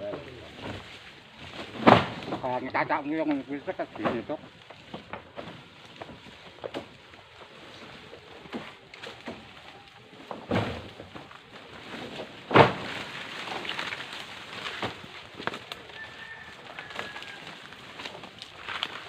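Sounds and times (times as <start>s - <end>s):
loud thumps: 1.6s - 2.6s.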